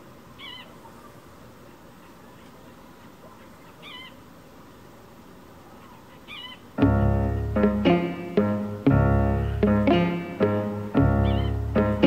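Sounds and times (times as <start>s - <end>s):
faint background hiss: 0.0s - 12.0s
kingbird burry calls: 0.4s - 4.3s, 5.7s - 7.2s, 11.1s - 11.7s.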